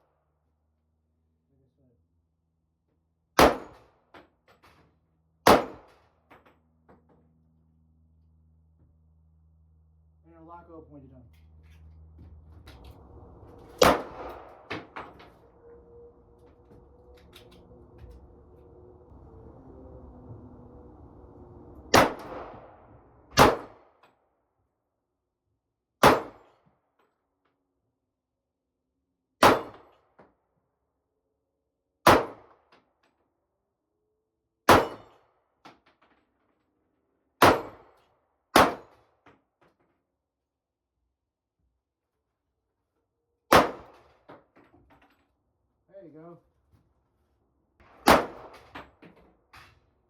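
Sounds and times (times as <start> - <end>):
pistol shot with echo: 3.4 - 3.8, 5.5 - 5.9, 13.8 - 14.8, 21.9 - 22.6, 23.4 - 23.8, 26.0 - 26.4, 29.4 - 29.8, 32.1 - 32.5, 34.7 - 35.0, 37.4 - 37.8, 38.6 - 38.9, 43.5 - 44.0, 48.0 - 48.6.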